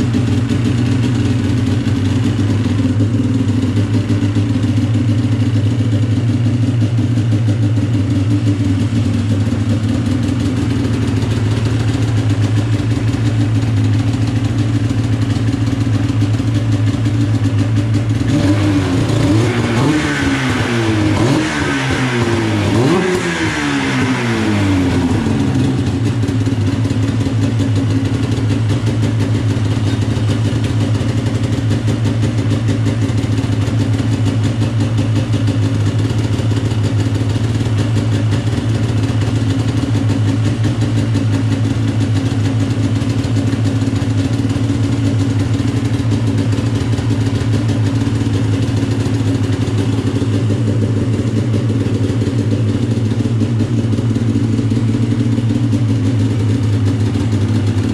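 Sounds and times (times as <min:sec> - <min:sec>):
snowmobile engine idling: 0:00.0 - 0:57.9
snowmobile engine revving: 0:18.2 - 0:25.8.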